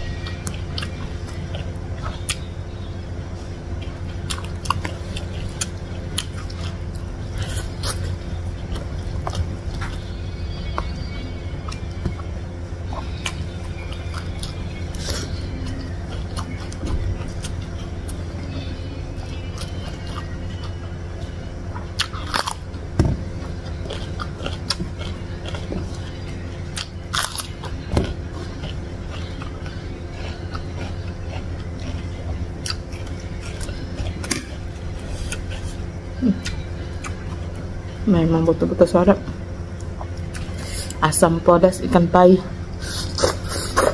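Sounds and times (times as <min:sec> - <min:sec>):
wet chewing: 0:00.0 - 0:02.8, 0:03.8 - 0:38.0, 0:39.7 - 0:41.0, 0:42.8 - 0:43.9
steady low hum: 0:00.0 - 0:43.9
crunchy vegetable bites: 0:22.0 - 0:35.8.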